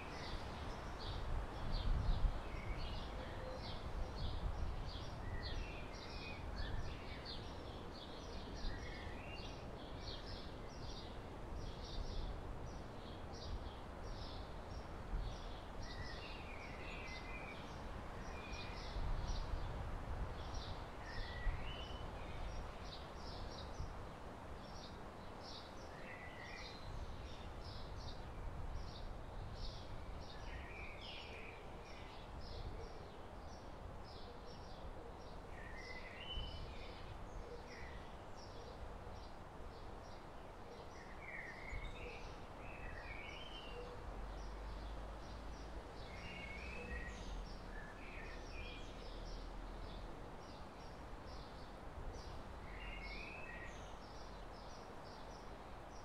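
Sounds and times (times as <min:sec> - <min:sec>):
wind on microphone: 0:00.4 - 0:02.9.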